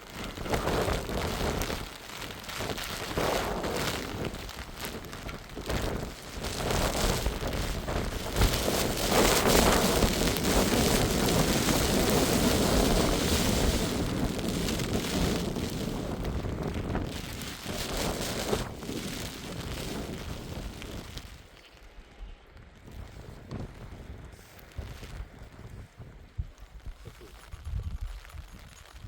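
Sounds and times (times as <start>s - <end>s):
heavy rain falling: 0.0s - 21.5s
wind: 0.0s - 29.0s.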